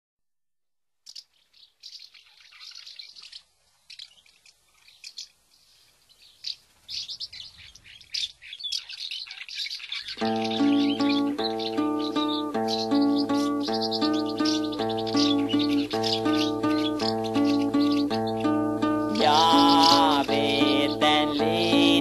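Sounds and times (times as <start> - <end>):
small birds chirping and singing: 1.0 - 22.0
music: 10.2 - 22.0.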